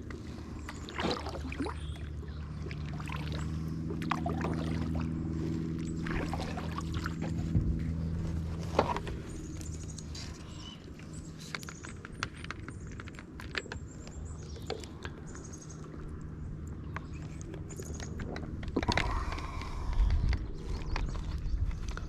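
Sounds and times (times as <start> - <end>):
paddle splashing water: 0.1 - 10.4.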